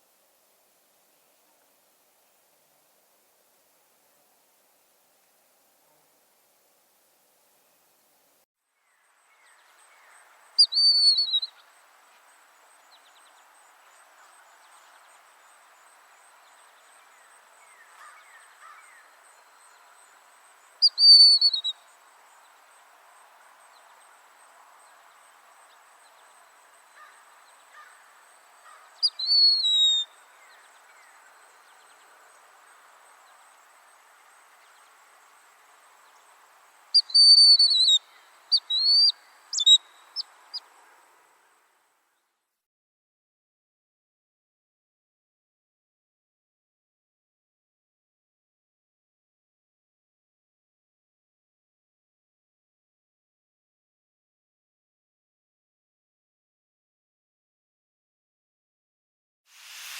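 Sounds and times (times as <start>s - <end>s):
faint background hiss: 0.0s - 42.6s, 59.5s - 59.9s
bird whistled falling call: 20.8s - 21.8s, 29.0s - 30.1s, 37.0s - 39.9s, 59.6s - 59.9s.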